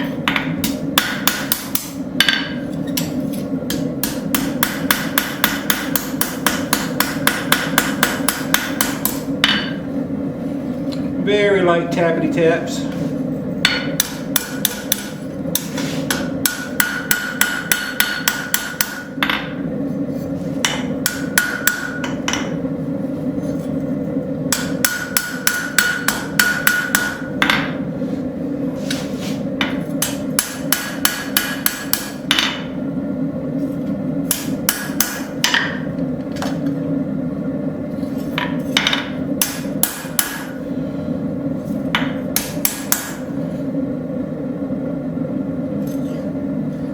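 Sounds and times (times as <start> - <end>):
steady low hum: 0.0 - 46.9
hammer tapping metal on anvil: 0.2 - 9.8, 13.6 - 19.6, 20.6 - 22.6, 24.5 - 27.8, 29.6 - 32.7, 34.3 - 36.6, 38.4 - 40.6, 42.0 - 43.2.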